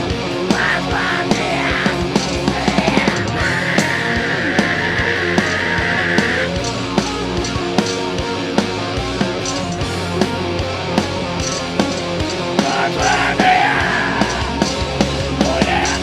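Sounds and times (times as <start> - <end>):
distorted guitar chords: 0.0 - 16.0
heavy metal band playing live: 0.0 - 16.0
voice-like wail: 0.5 - 6.5, 12.6 - 14.6, 15.4 - 16.0.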